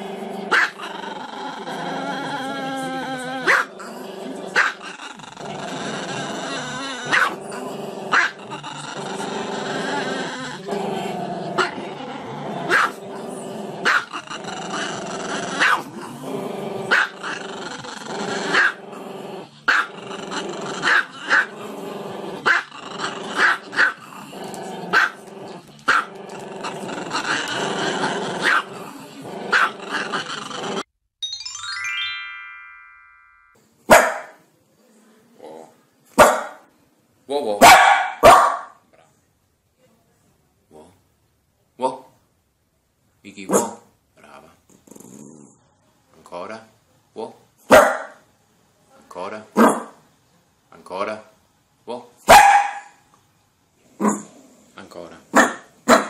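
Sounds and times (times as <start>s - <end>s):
dog barking: 0.5s - 0.8s, 3.5s - 3.7s, 7.1s - 7.4s, 8.1s - 8.4s, 12.7s - 13.0s, 13.9s - 14.1s, 15.6s - 15.9s, 24.9s - 25.2s, 28.4s - 28.6s, 29.5s - 29.8s, 33.9s - 34.4s, 36.2s - 36.6s, 37.6s - 38.8s, 43.5s - 43.9s, 47.7s - 48.2s, 49.6s - 50.0s, 52.3s - 53.0s, 54.0s - 54.3s, 55.3s - 56.0s
short falling chime: 31.2s - 33.6s.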